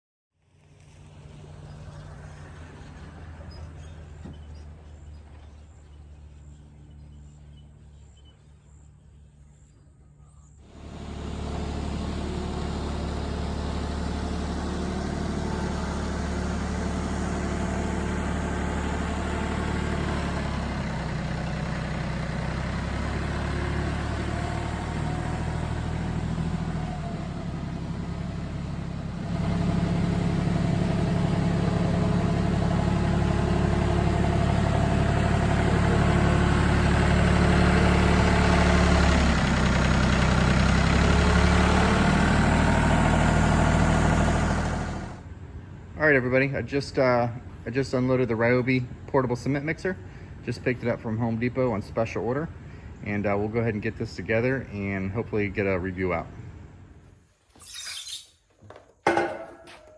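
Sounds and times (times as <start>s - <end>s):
engine running at low revs: 0.4s - 46.0s.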